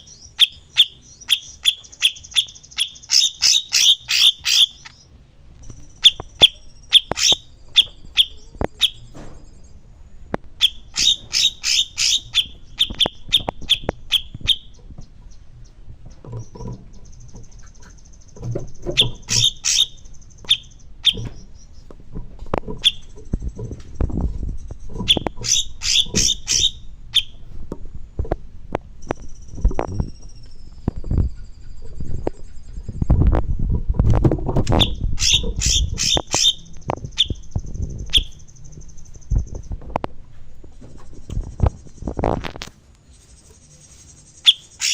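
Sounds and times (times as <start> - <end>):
songbird chirping: 0.0 - 27.6, 28.2 - 33.4, 34.6 - 42.4, 43.0 - 44.9
dull low thumps: 12.3 - 42.3.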